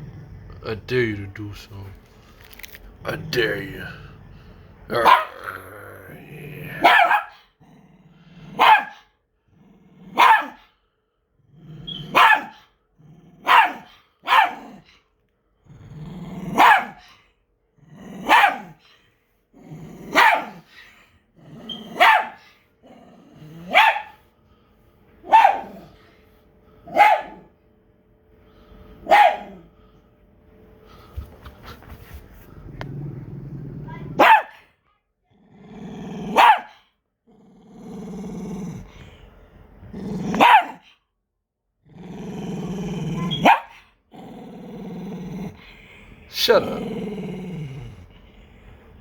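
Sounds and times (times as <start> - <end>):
dog growling: 0.0 - 10.6, 11.4 - 15.0, 15.6 - 17.1, 17.7 - 24.2, 32.4 - 34.6, 35.2 - 40.9, 41.7 - 49.0
dog barking: 5.0 - 5.4, 6.8 - 7.4, 8.6 - 9.1, 10.1 - 10.6, 12.1 - 12.6, 13.4 - 14.7, 16.6 - 17.0, 18.2 - 18.8, 20.1 - 20.6, 22.0 - 22.4, 23.7 - 24.2, 25.2 - 25.8, 26.9 - 27.5, 29.0 - 29.6, 34.2 - 34.6, 36.3 - 36.8, 40.3 - 40.8, 43.3 - 43.8.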